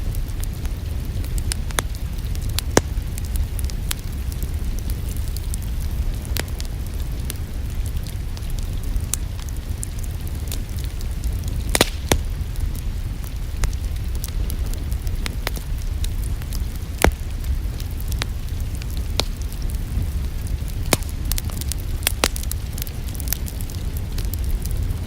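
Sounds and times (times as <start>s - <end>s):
fire pops and snaps: 0.0s - 25.0s
low fire rumble: 0.0s - 25.0s
wood fire crackling: 0.0s - 25.0s.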